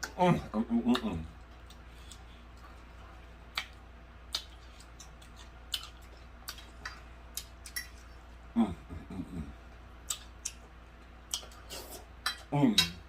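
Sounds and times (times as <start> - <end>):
faint steady hum: 0.0 - 13.0
wet chewing smacks and clicks: 0.9 - 8.2, 10.0 - 13.0.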